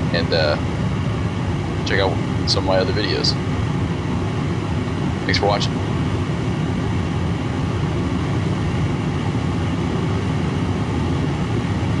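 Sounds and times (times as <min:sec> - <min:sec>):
propane burner roaring: 0:00.0 - 0:12.0.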